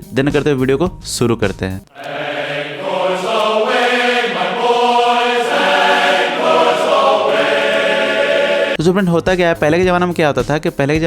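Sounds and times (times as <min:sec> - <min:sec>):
choir-like chanting voices: 0:01.9 - 0:08.8.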